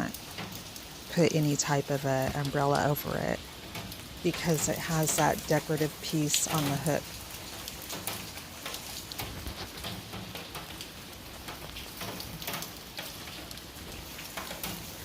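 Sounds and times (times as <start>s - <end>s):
rain falling: 0.0s - 15.0s
raindrops ticking on surfaces: 0.0s - 15.0s.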